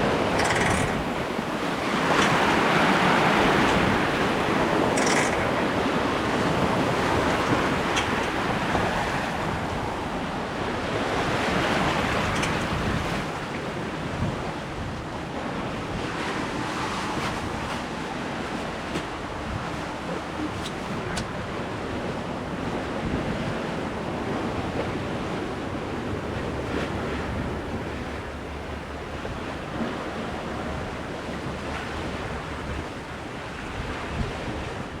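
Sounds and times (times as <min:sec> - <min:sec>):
water rushing along boat hull: 0:00.0 - 0:35.0
wind buffeting microphone: 0:00.0 - 0:35.0.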